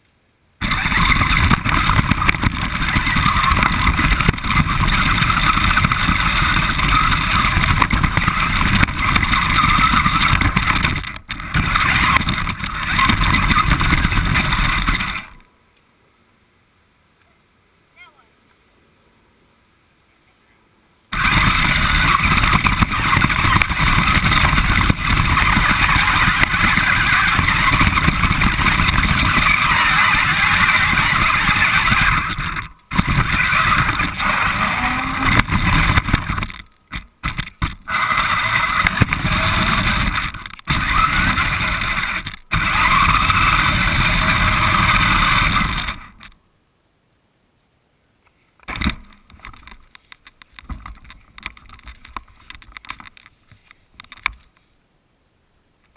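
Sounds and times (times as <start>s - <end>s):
radio-controlled car motor whining: 0.6s - 15.4s, 21.1s - 46.4s.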